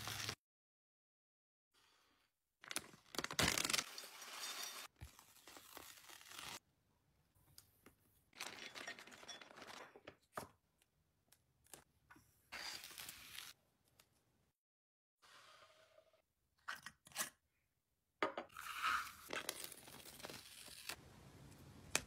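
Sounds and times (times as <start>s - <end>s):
packaging tearing and crinkling: 2.7s - 4.1s.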